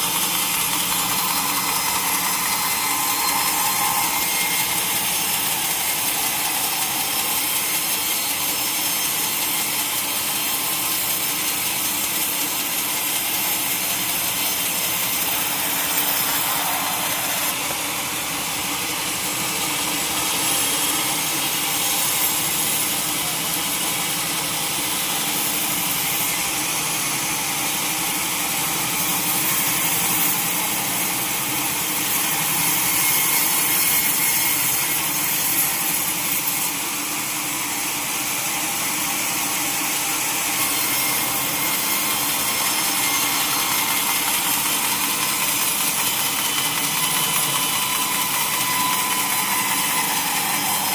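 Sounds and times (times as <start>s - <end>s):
sawmill saw cutting log: 0.0s - 50.9s.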